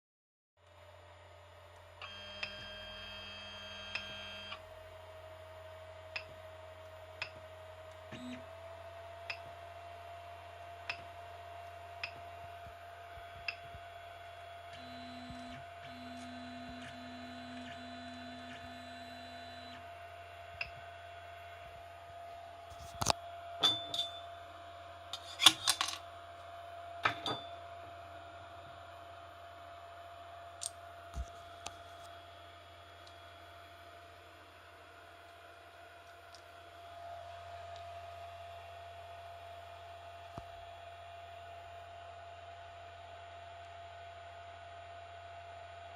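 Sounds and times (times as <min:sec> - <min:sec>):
printer humming: 0:11.3 - 0:21.9
stepper motors whining: 0:14.7 - 0:19.8.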